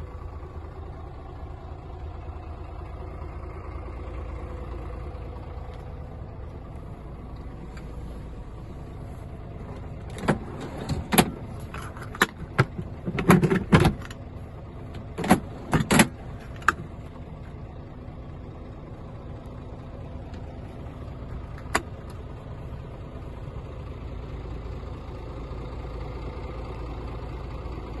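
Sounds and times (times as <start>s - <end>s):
diesel truck engine idling: 0.0s - 28.0s
sharp clicks and knocks: 9.7s - 14.2s.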